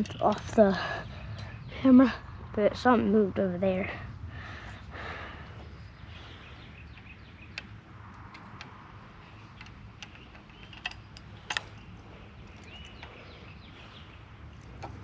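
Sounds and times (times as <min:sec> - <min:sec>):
low outdoor background: 0:00.0 - 0:15.0
sharp clicks: 0:06.9 - 0:13.2
faint bird chirps: 0:09.2 - 0:14.7.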